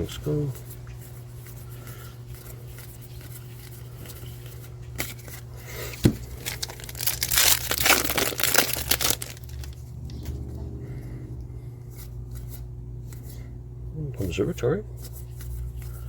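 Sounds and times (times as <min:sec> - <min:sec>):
foil wrapper tearing and crinkling: 0:06.2 - 0:09.8.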